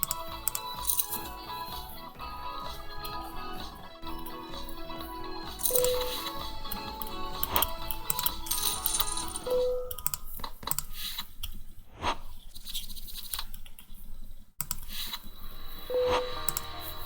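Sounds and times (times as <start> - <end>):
computer keys clicking: 0.0 - 1.3, 5.6 - 10.9, 14.6 - 15.2, 16.1 - 16.8
short beep: 5.7 - 6.3, 9.4 - 10.0, 15.9 - 16.4.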